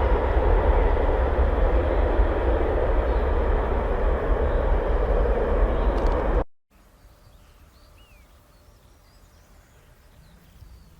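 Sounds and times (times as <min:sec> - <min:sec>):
jet engines rumbling: 0:00.0 - 0:06.5
bird chirps: 0:07.0 - 0:10.9.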